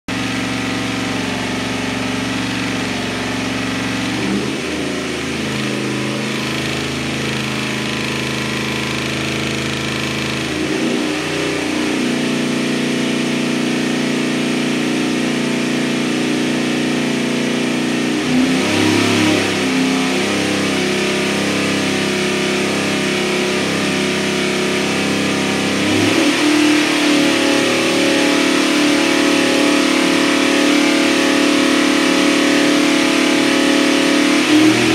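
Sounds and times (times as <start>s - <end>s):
engine running on a dyno: 0.1s - 34.9s.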